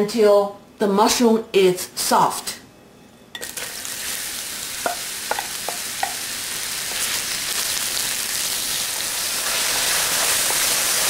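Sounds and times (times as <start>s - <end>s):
mushrooms sizzling in hot oil: 3.4s - 11.0s.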